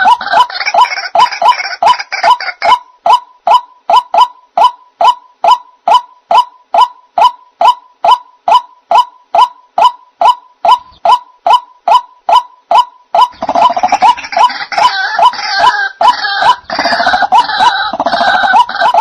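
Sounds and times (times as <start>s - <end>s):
waterhen calls: 0.0s - 19.0s
harsh bird chatter: 13.3s - 19.0s.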